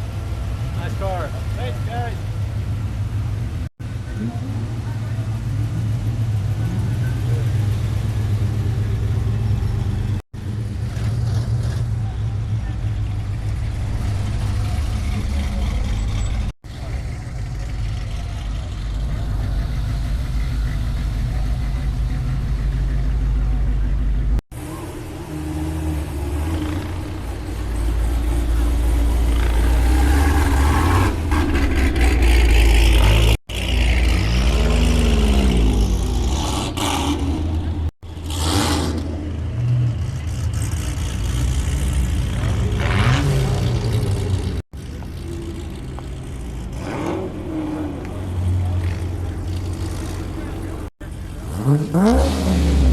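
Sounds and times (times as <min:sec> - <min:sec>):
car engines rumbling: 0:00.0 - 0:52.9
engine revving: 0:24.3 - 0:52.9.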